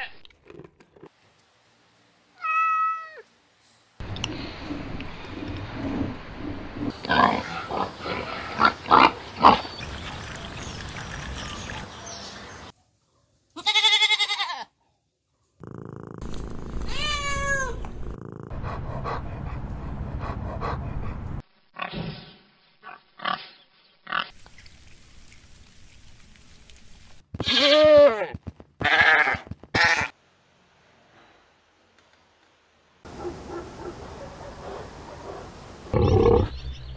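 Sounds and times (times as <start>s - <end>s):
cat meowing: 2.4s - 3.3s, 16.9s - 18.0s.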